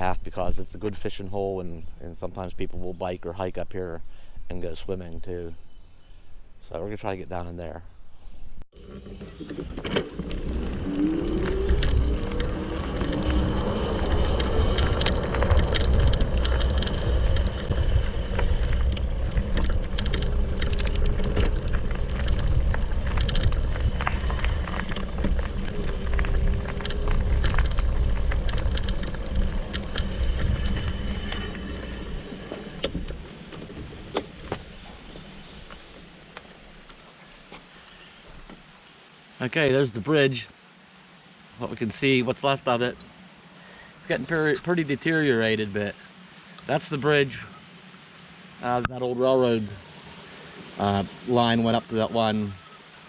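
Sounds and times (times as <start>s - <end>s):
bike rumbling on dirt path: 0.0s - 38.7s
electric motor whine: 10.0s - 33.3s.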